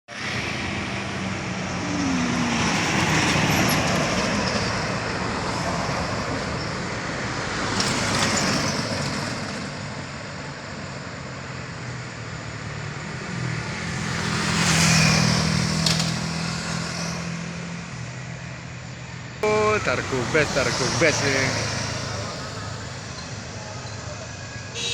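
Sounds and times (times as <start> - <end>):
engines droning uphill: 0.1 - 24.9
vehicles passing: 0.1 - 24.9.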